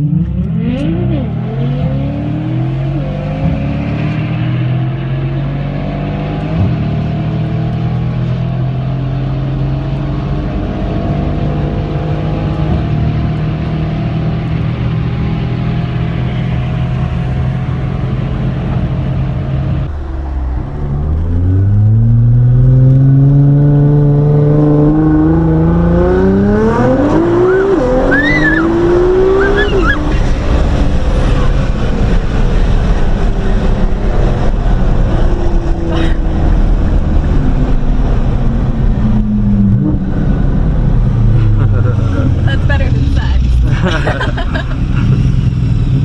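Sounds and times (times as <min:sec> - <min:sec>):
car engine accelerating: 0:00.0 - 0:46.0
road noise: 0:00.0 - 0:46.0
woman squealing: 0:28.1 - 0:28.7, 0:29.4 - 0:30.2.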